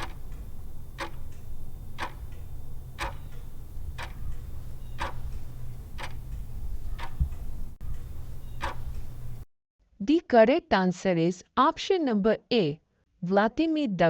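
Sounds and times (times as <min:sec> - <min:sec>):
countdown timer ticking: 0:00.0 - 0:09.4
low hum: 0:00.0 - 0:09.5.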